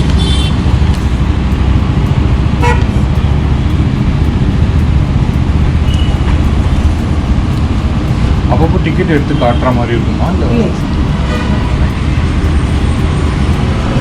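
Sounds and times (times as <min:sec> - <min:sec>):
road traffic rumble: 0:00.0 - 0:14.0
vehicle horn toot: 0:00.1 - 0:00.6, 0:02.6 - 0:02.9, 0:05.9 - 0:06.2.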